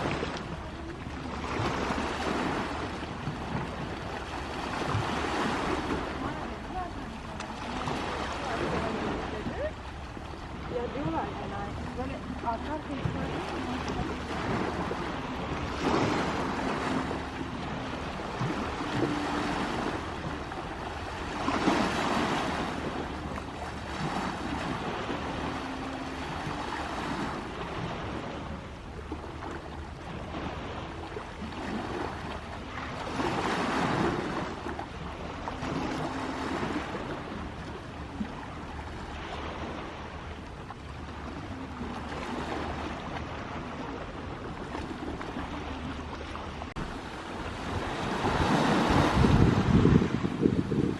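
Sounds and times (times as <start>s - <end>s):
sea waves breaking: 0.0s - 50.9s.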